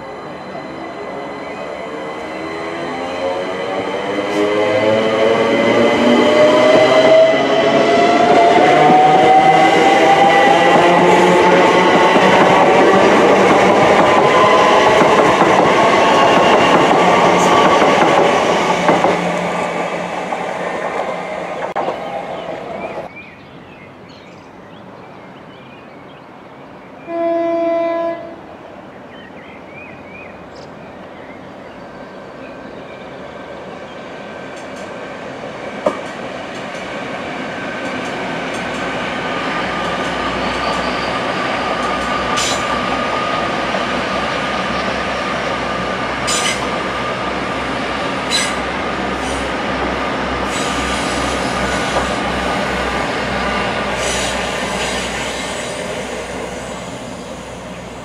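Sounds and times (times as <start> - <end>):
electric train rumbling and clattering: 0.0 - 23.1, 32.8 - 58.0
train approaching: 0.0 - 58.0
distant train horn: 27.0 - 28.5.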